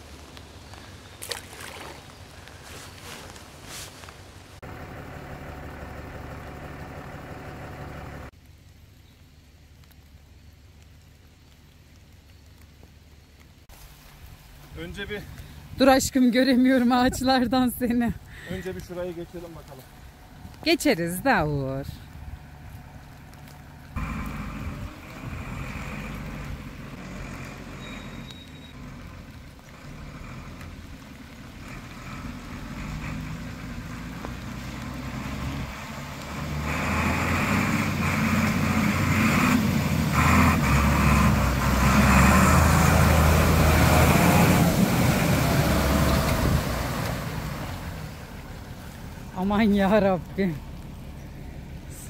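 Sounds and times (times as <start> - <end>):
water splashing and churning: 0.0 - 4.6, 29.3 - 51.1
off-road vehicle engine: 0.0 - 52.0.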